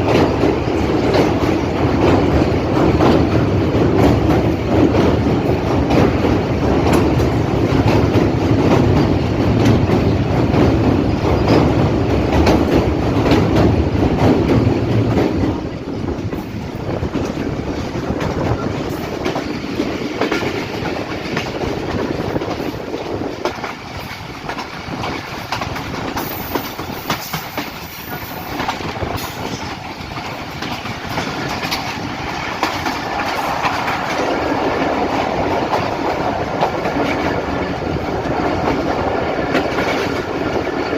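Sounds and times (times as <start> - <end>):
train wheels clickety-clack: 0.0 - 40.9.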